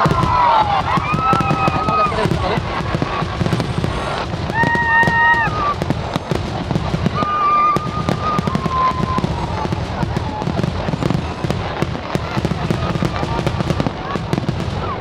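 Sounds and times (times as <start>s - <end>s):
high held shout or whistle: 0.0s - 2.3s, 4.5s - 5.8s, 7.2s - 10.4s
firecrackers crackling: 0.0s - 15.0s.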